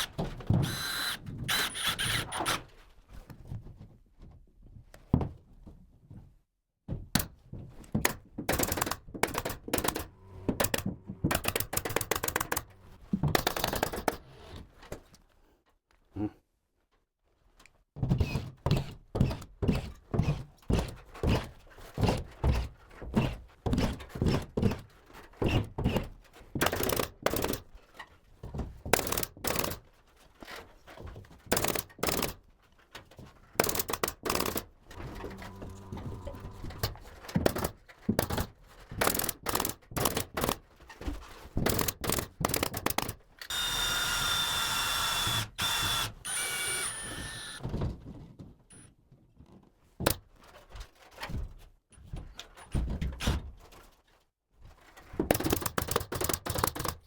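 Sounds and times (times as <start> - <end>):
small power tool whining: 0.0 - 2.6, 35.0 - 36.8, 43.5 - 47.6.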